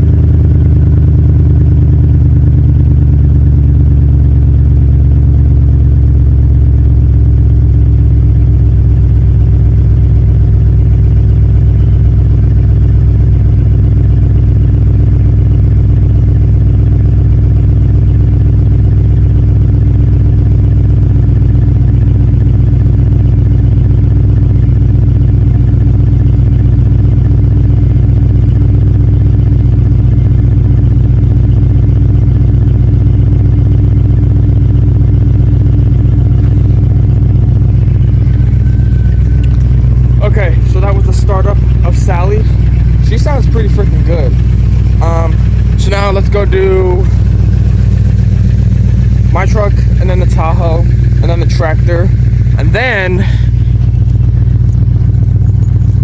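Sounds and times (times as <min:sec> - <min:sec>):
truck engine idling loudly: 0:00.0 - 0:56.0.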